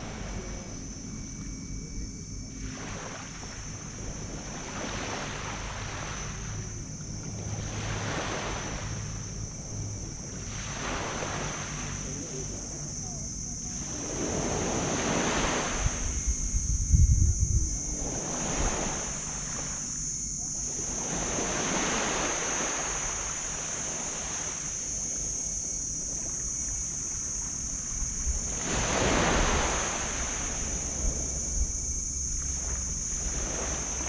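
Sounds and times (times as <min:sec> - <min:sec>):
steady high hiss: 0:00.0 - 0:34.0
waves breaking on sand beach: 0:02.6 - 0:16.6, 0:17.7 - 0:34.0
wind buffeting microphone: 0:13.6 - 0:20.4.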